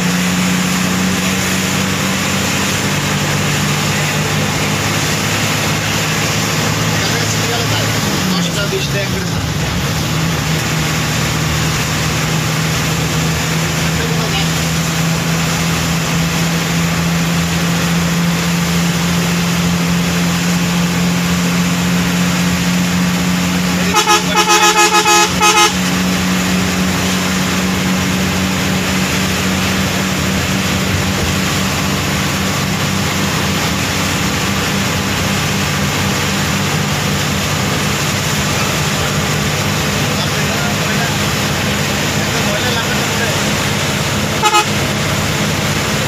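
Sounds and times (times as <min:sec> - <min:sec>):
heavy vehicle engine droning: 0:00.0 - 0:46.0
multi-tone horn blasts: 0:23.8 - 0:26.2, 0:44.3 - 0:45.0.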